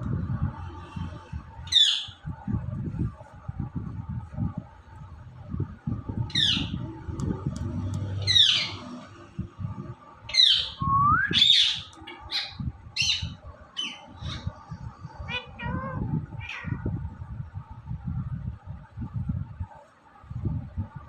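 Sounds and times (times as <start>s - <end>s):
parakeet squawking: 6.3s - 6.8s, 8.2s - 8.9s, 10.3s - 10.8s, 11.4s - 14.5s, 15.3s - 16.8s.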